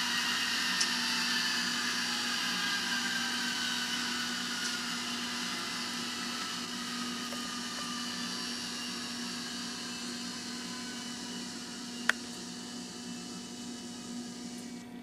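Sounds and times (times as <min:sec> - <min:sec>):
simulated diesel engine through small speaker: 0:00.0 - 0:15.0.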